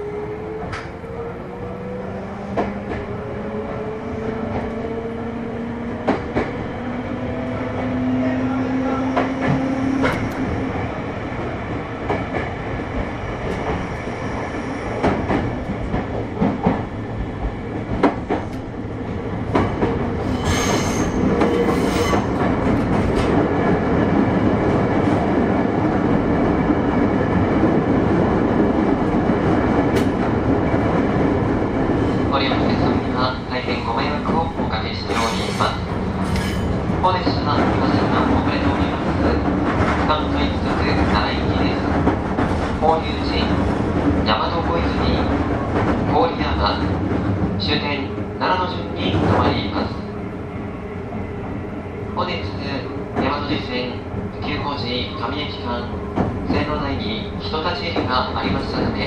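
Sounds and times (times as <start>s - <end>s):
rail-joint clicks: 0.6s - 1.0s, 9.1s - 10.5s, 19.5s - 23.4s, 29.9s - 30.3s, 34.2s - 38.0s
high wheel squeal: 20.2s - 22.4s.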